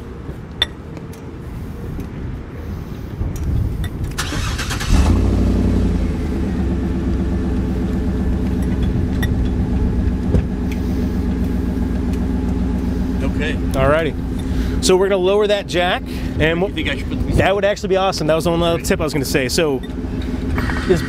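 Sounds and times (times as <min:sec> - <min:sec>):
car engine idling: 0:04.2 - 0:21.0.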